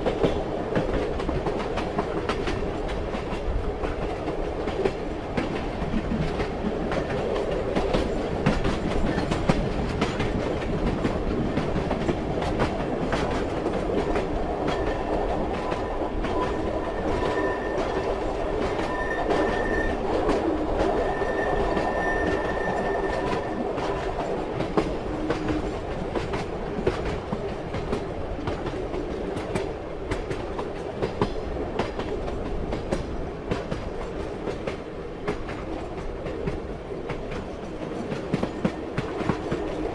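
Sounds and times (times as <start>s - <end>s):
train wheels clattering over joints: 0.0s - 39.9s
faint wheel squeal: 16.4s - 18.1s, 18.8s - 20.0s, 21.0s - 23.6s.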